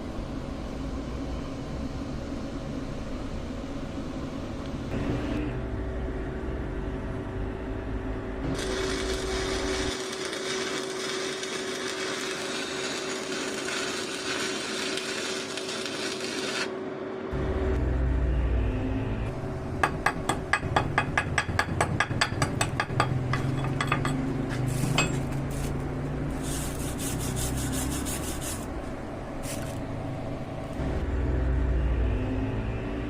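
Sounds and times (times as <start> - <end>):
welding arc crackling and hissing: 8.4 - 16.8, 24.5 - 28.8.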